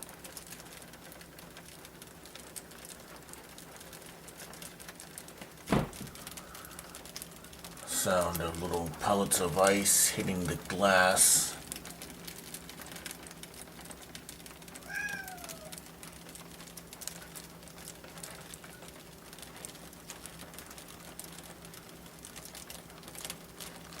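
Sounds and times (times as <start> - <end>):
ice pellets ticking on window: 0.0 - 24.0
low steady hum: 0.0 - 24.0
cat meowing: 14.8 - 15.8.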